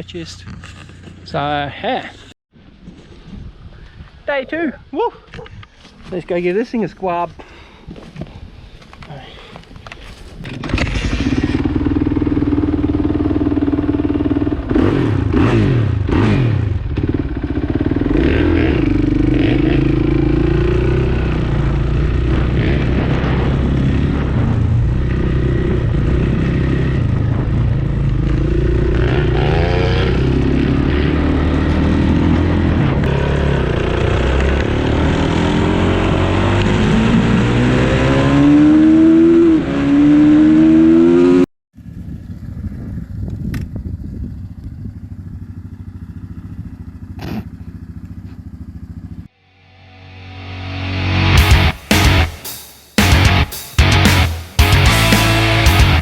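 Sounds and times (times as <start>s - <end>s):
dirt bike engine revving: 10.6s - 41.5s, 50.2s - 56.0s.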